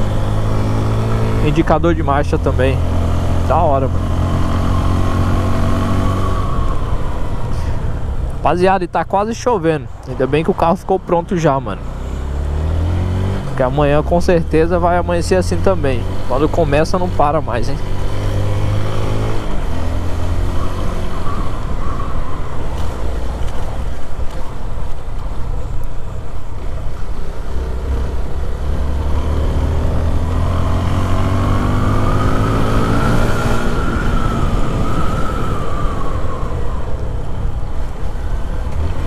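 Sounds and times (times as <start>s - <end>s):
small motorcycle engine rumbling: 11.5s - 39.0s.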